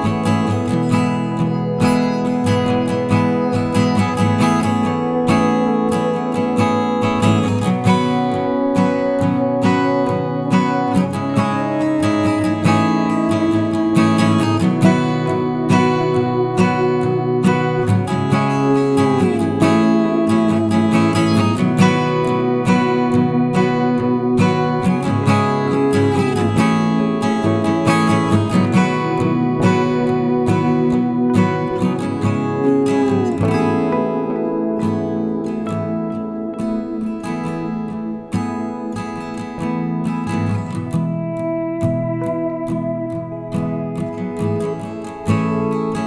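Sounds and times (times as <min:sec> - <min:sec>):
acoustic guitar strumming: 0:00.0 - 0:46.0.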